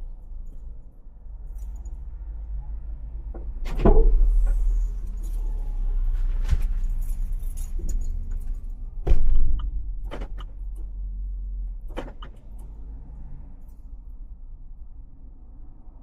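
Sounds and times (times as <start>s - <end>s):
car engine and road rumble: 0.0s - 16.0s
loud thump: 9.0s - 9.6s.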